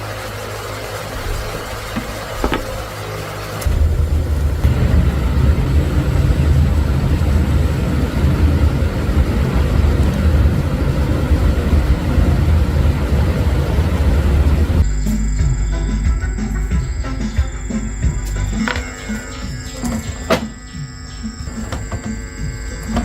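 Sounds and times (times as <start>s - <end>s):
loud low rumble: 3.7s - 11.5s.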